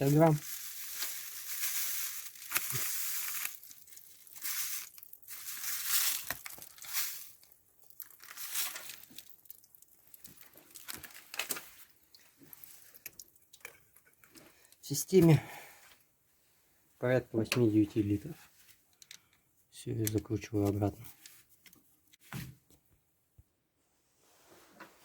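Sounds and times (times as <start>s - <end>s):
plastic packet crinkling: 0.0s - 13.7s.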